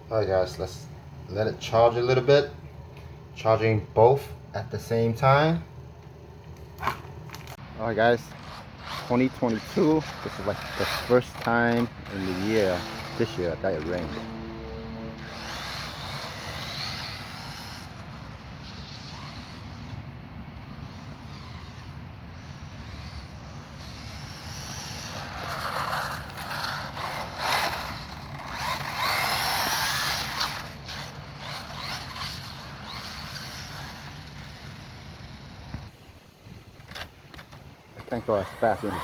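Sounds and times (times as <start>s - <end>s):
electric rc car motor whining: 8.2s - 35.9s, 38.0s - 39.0s.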